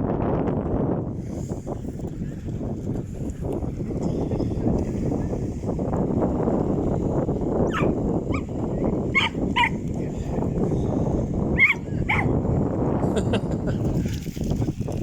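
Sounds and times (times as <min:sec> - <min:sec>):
dog barking and yelping: 0:07.7 - 0:08.5, 0:09.1 - 0:09.8, 0:11.6 - 0:12.3.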